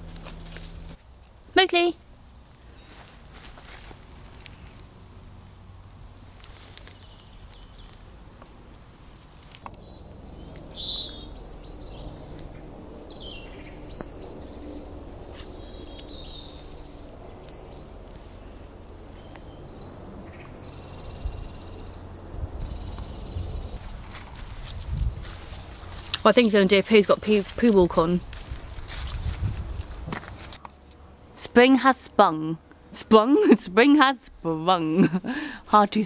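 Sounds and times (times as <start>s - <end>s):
low rumble: 0.0s - 1.0s
birds chirping: 9.7s - 31.1s
buzzy bird trills: 9.8s - 18.1s.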